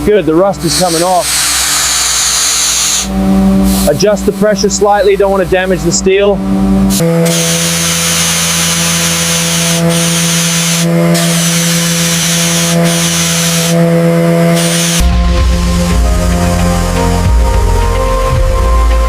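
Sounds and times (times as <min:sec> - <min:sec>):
pressure blaster hissing: 0:00.6 - 0:04.0, 0:06.9 - 0:17.2
low hum: 0:03.1 - 0:07.2, 0:13.8 - 0:19.0.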